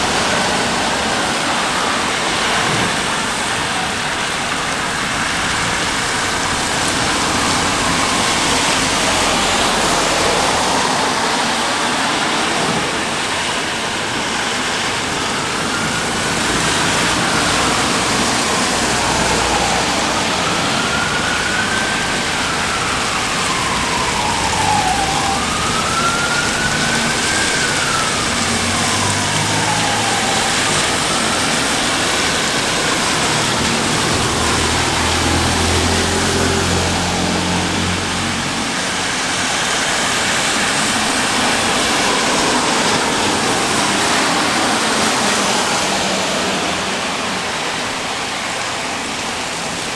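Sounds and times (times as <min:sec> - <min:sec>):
emergency siren wailing: 0:00.0 - 0:49.9
steady rain: 0:00.0 - 0:49.9.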